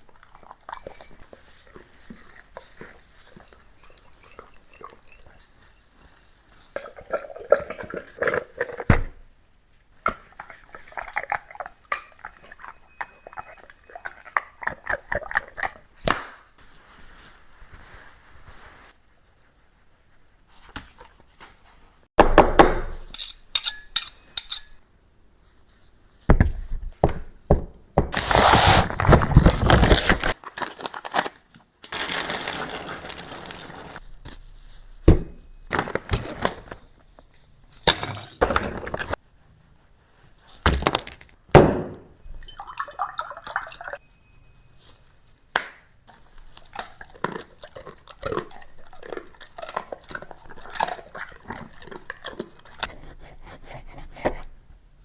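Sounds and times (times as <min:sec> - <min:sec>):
dishes clinking: 0:23.0 - 0:24.8
dog crunching food: 0:46.1 - 0:52.9.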